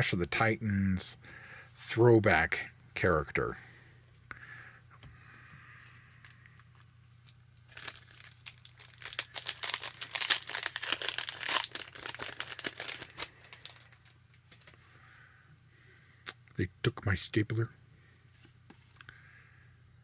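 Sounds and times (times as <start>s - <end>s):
foil wrapper tearing and crinkling: 7.2s - 14.8s.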